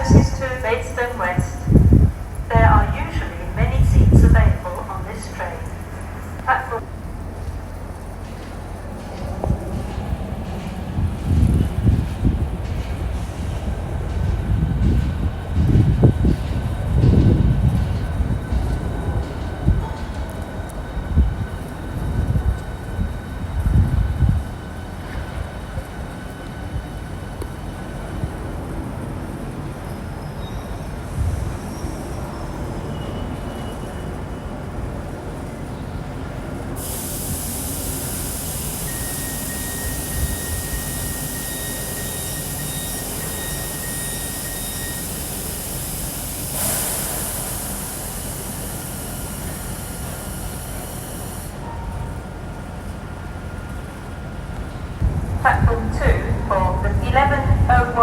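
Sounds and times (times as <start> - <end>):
train low rumble: 0.0 - 58.0
loud hiss: 36.8 - 51.6.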